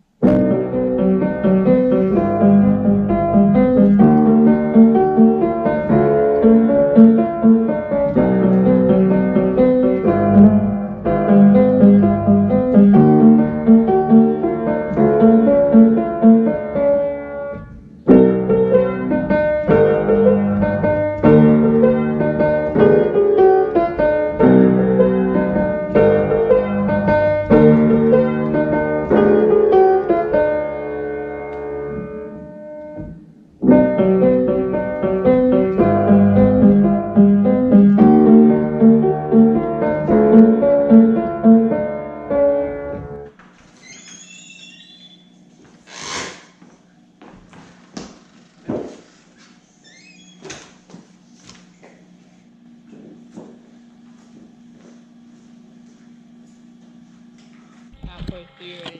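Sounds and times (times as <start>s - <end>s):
piano music: 0.0s - 43.4s.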